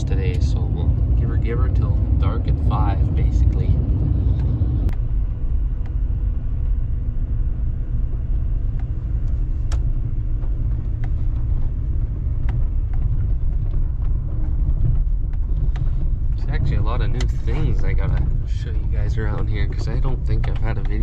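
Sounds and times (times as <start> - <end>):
sharp clicks and rattles: 0.0 - 6.9, 7.9 - 21.0
road noise: 0.0 - 21.0
truck engine rumble: 0.0 - 21.0.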